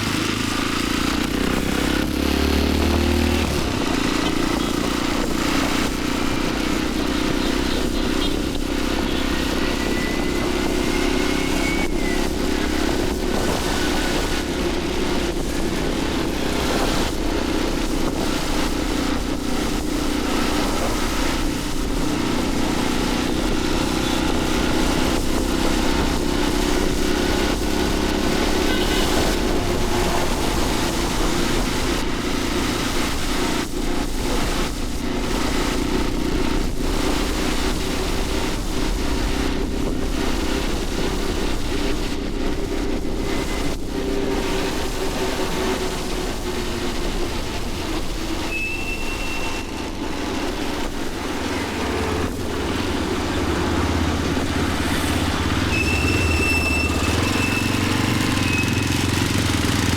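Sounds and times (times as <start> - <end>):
motorcycle engine running: 0.0 - 59.9
traffic noise rush: 0.0 - 59.9.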